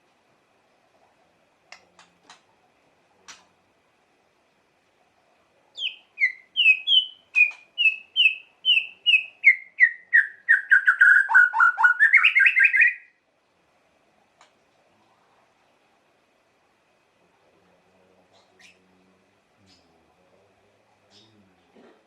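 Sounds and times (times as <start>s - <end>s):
bird singing whistled notes: 5.8s - 13.2s.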